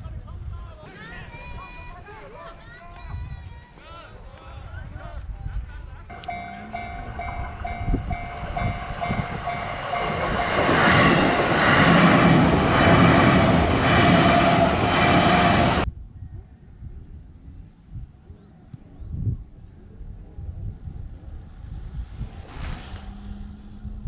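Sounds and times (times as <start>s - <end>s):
level crossing bell dinging: 6.1s - 10.2s
rhythmic train clatter: 6.1s - 15.8s
train rushing past: 6.1s - 15.9s, 21.4s - 24.0s.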